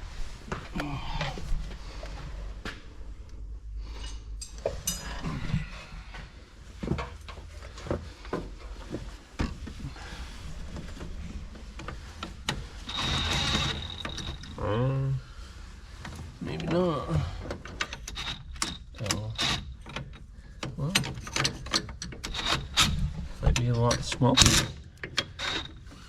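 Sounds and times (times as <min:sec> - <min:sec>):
low steady hum: 0:00.0 - 0:24.9
metal tools clinking: 0:03.9 - 0:05.5, 0:12.8 - 0:14.6.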